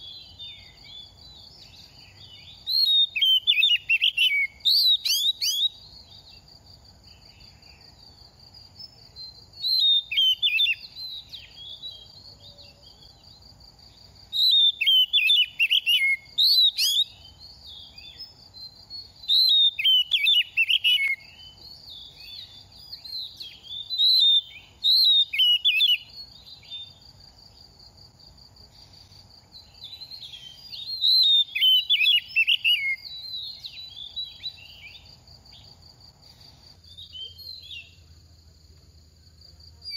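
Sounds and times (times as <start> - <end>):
bird singing whistled phrases: 0.0 - 5.9, 9.2 - 12.2, 14.3 - 27.0, 29.6 - 35.0, 36.9 - 38.0.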